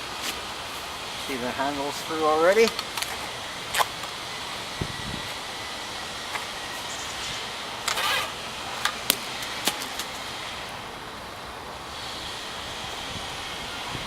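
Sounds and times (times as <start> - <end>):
steady background hiss: 0.0 - 14.0
broom handle scraping in hose: 6.9 - 8.4.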